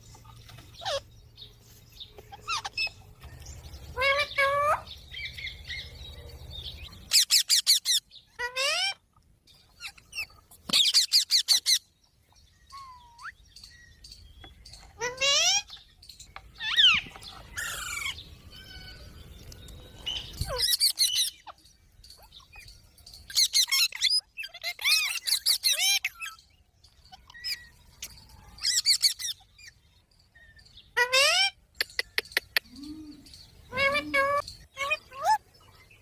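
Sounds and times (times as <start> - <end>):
parrots screeching and chattering: 0.2 - 1.1, 2.1 - 5.9, 6.8 - 9.0, 9.6 - 11.9, 14.7 - 19.1, 20.0 - 29.8, 30.4 - 35.8.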